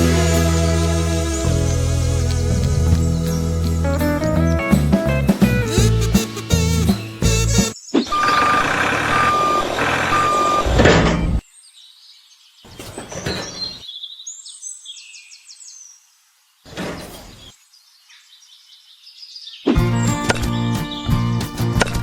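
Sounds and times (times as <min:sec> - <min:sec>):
reversing alarm beeping: 0:08.1 - 0:11.4.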